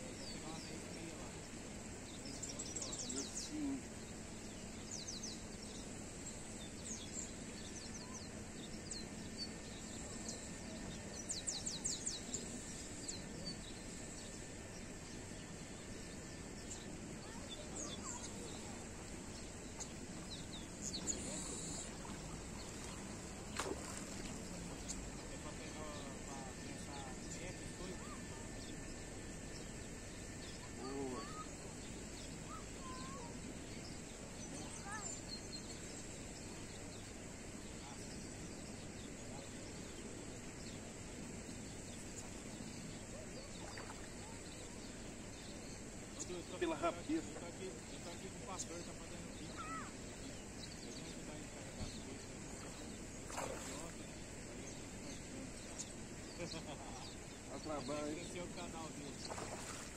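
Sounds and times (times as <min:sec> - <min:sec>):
outdoor background noise: 0:00.0 - 0:59.9
bird calls: 0:16.4 - 0:28.8, 0:30.4 - 0:36.2, 0:41.5 - 0:59.9
bird chirping: 0:29.5 - 0:37.0.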